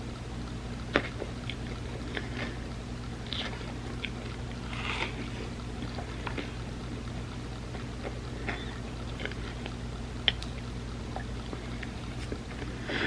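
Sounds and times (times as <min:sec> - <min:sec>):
steady low hum: 0:00.0 - 0:13.0
chewing and wet mouth clicks: 0:08.5 - 0:12.3.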